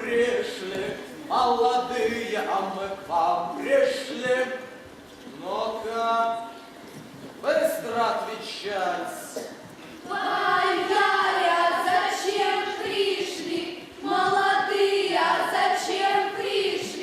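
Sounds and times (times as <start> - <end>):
girls singing together: 10.0 - 17.0.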